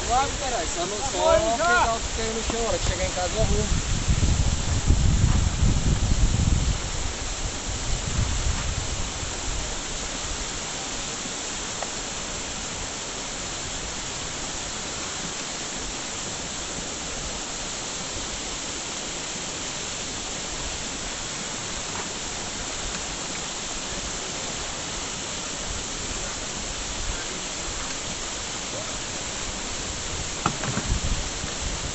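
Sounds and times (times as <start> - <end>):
steady rushing noise: 0.0 - 31.9.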